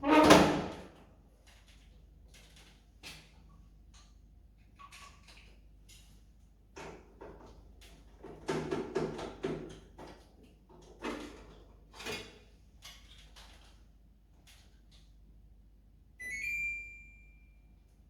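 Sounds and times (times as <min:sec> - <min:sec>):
low steady hum: 0:16.2 - 0:18.0.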